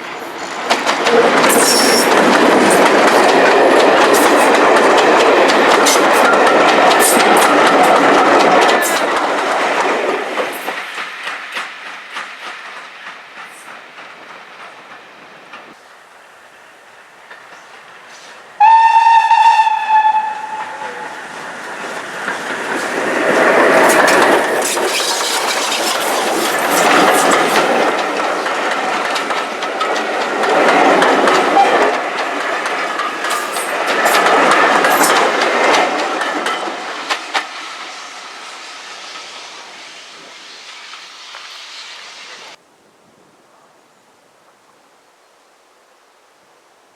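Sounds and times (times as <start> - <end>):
train wheels clicking over rail joints: 0.0 - 18.7, 19.7 - 42.6
steam train working: 0.0 - 42.6
steam locomotive whistle: 18.2 - 21.3.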